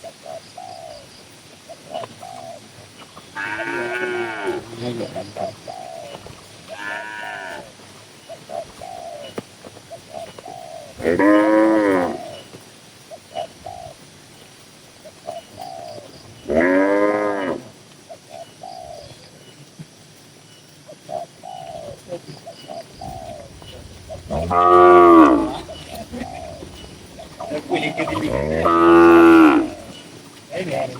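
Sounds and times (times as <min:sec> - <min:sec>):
faint cattle calls: 0:03.3 - 0:07.8, 0:22.7 - 0:30.9
cows mooing: 0:03.4 - 0:05.0, 0:06.7 - 0:07.7, 0:11.0 - 0:12.3, 0:23.0 - 0:30.0.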